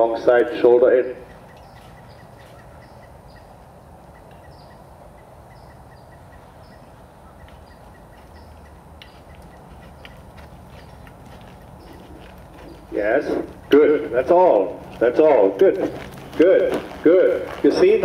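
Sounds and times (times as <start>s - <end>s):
outdoor background hiss: 0.0s - 18.0s
high falling bird chirp: 0.7s - 15.4s
quick ticking bird call: 1.1s - 3.5s.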